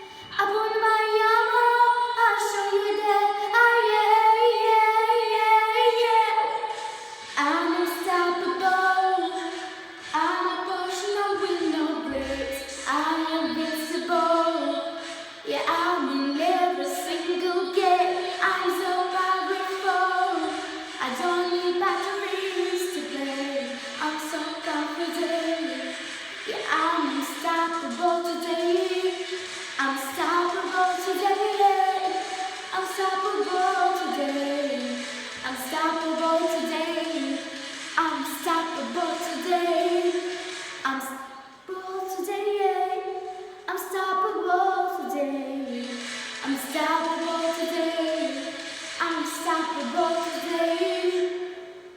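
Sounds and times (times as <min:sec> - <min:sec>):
girl singing pop song: 0:00.0 - 0:51.9.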